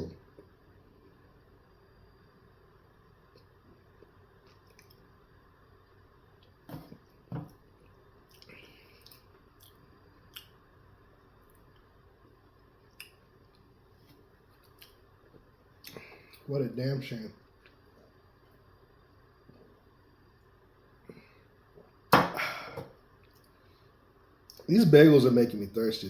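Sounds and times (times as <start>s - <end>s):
person chewing: 3.3s - 5.1s, 7.8s - 10.6s, 12.8s - 13.7s, 14.5s - 15.0s, 15.8s - 16.5s
mouth clicks and smacks: 8.3s - 10.6s, 12.9s - 13.6s, 14.6s - 15.0s.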